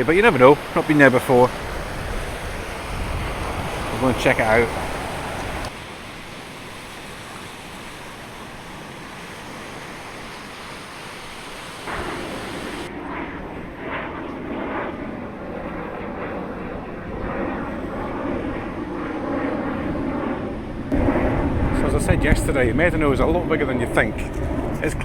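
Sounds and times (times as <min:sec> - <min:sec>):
surf: 0:00.0 - 0:12.9
wind on the microphone: 0:00.0 - 0:25.0.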